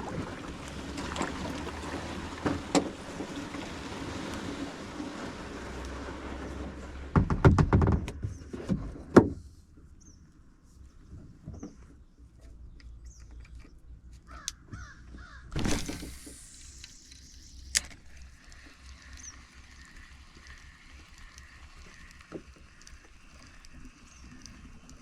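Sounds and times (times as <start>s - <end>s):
bird calls: 12.7s - 15.6s.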